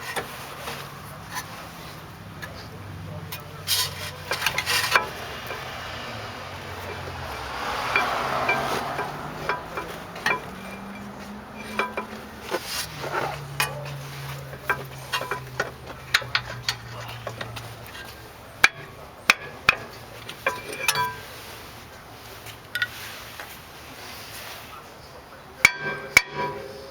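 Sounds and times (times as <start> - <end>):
metal tools clinking: 0.0 - 23.6, 25.6 - 26.9.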